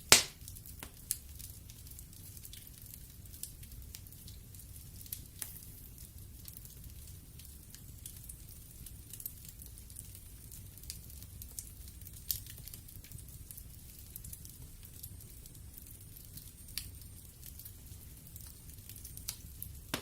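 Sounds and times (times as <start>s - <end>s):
burning logs crackling and popping: 0.0s - 20.0s
fire flames rumbling: 0.0s - 20.0s.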